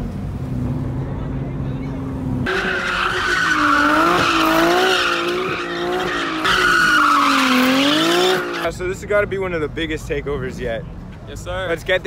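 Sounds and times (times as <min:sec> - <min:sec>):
engine revving: 0:02.4 - 0:08.7
tyres squealing: 0:02.5 - 0:08.7.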